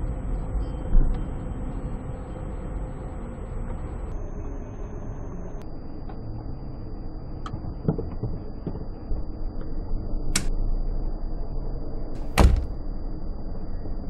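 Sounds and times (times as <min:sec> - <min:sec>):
low road noise: 0:00.0 - 0:13.9
sharp click: 0:10.4 - 0:10.6
loud thud: 0:12.2 - 0:12.8.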